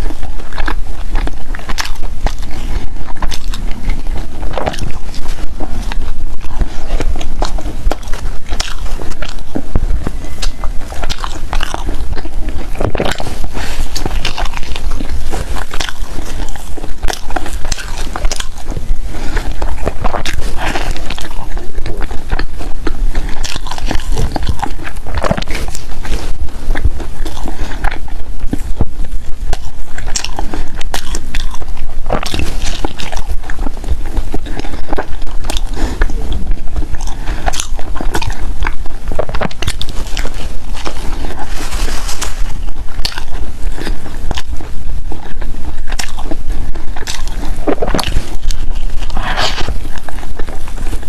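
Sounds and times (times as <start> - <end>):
chewing bread: 0.0 - 51.0.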